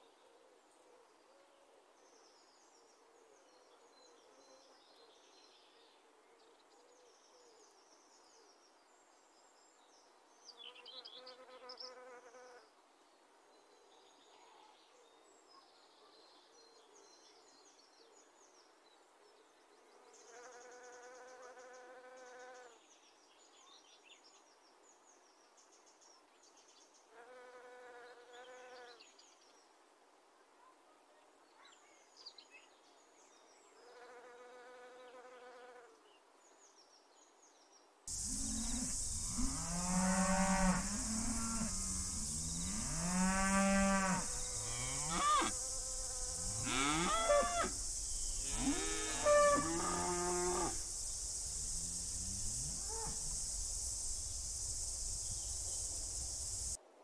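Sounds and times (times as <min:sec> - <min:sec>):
insects buzzing: 0:38.1 - 0:56.8
cattle mooing: 0:46.5 - 0:47.8.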